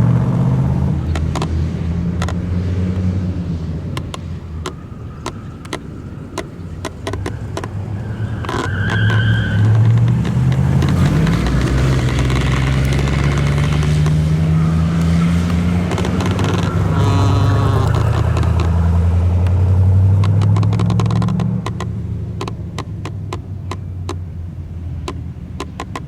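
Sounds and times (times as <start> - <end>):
car engine revving: 0.0 - 26.0
sharp ticks: 1.0 - 3.1, 3.9 - 26.0
high squeal: 4.3 - 19.3.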